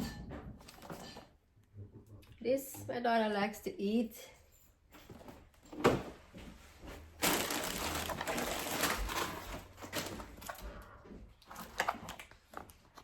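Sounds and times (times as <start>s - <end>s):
packaging crinkling and rustling: 7.1s - 10.7s, 11.4s - 13.0s.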